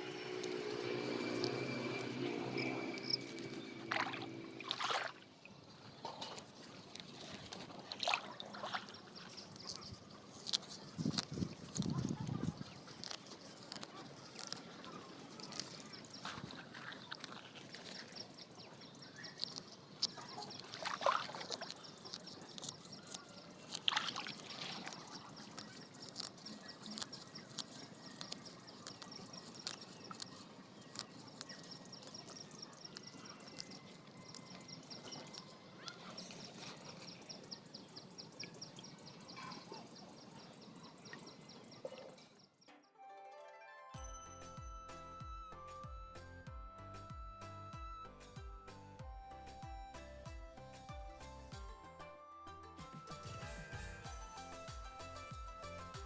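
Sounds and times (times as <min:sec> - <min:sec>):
fast high insect ticking: 0:17.0 - 0:35.5.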